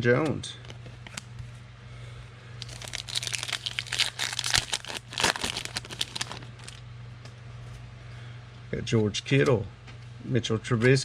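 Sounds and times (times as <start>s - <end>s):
foil wrapper crinkling: 2.6s - 6.8s.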